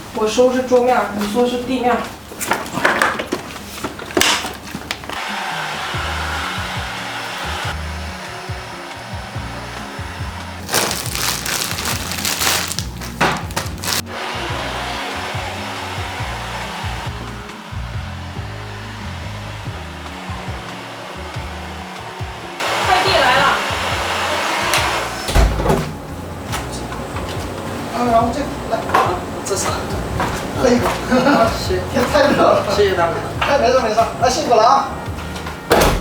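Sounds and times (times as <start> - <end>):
vacuum cleaner running: 5.1 - 32.8
background music: 5.2 - 36.0.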